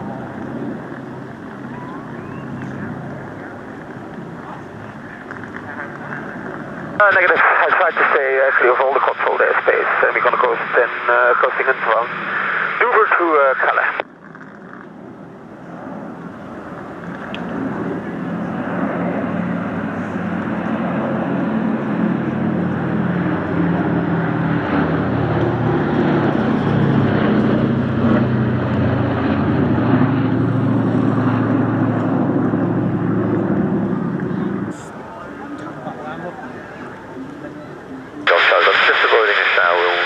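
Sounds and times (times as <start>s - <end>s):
aircraft engine running: 0.0s - 40.0s.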